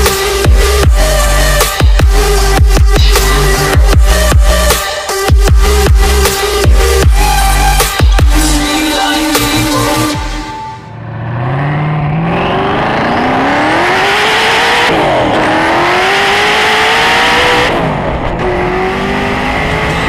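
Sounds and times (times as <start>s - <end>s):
car engine accelerating hard: 10.9s - 20.0s.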